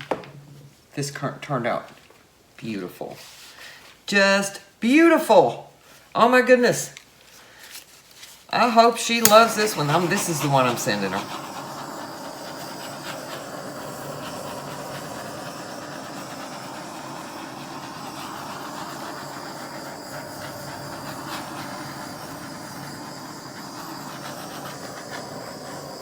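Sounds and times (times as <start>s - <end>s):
blow dryer running: 9.2s - 26.0s.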